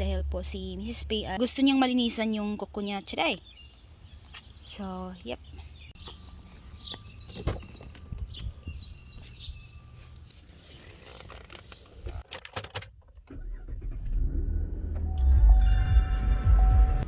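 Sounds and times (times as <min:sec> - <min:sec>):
car engine starting and rumbling: 0:00.0 - 0:02.6, 0:05.9 - 0:17.0.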